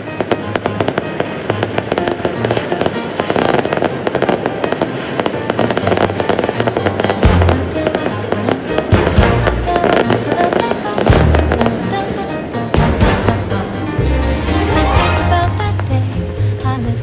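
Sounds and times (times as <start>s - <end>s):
fireworks crackling pops: 0.0s - 13.4s
pop music: 7.3s - 17.0s.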